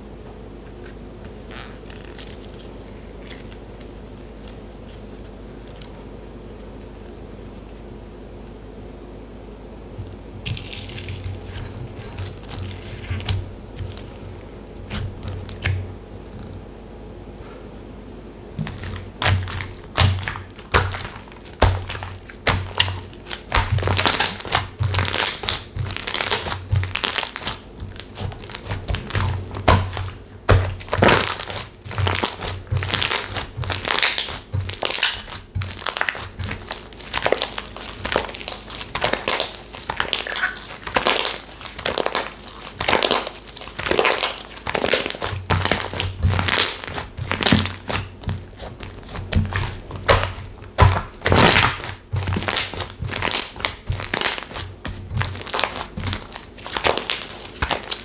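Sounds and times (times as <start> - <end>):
slime crackling squishes: 10.0 - 16.4, 18.6 - 58.0
dull thuds: 18.6 - 37.3.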